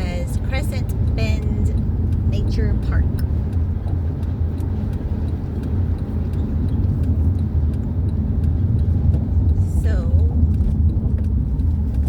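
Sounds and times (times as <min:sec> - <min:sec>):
car road and engine rumble: 0:00.0 - 0:12.0
faint light ticks: 0:00.0 - 0:12.0.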